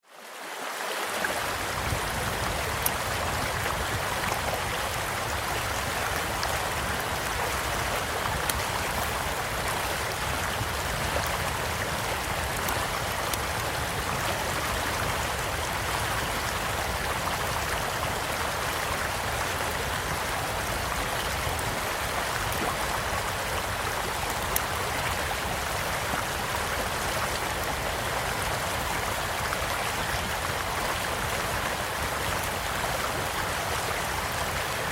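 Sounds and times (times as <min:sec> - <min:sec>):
small stream running: 0:00.0 - 0:34.9
campfire crackling and popping: 0:08.3 - 0:09.6.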